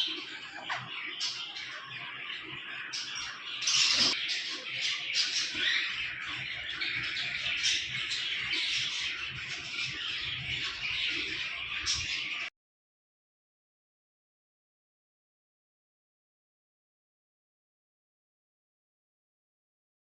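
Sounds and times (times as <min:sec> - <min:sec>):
caged birds calling: 0:00.0 - 0:12.5.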